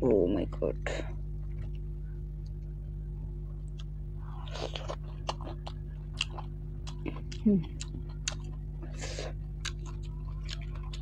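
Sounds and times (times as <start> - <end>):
steady low hum: 0.0 - 11.0
person chewing: 3.6 - 11.0.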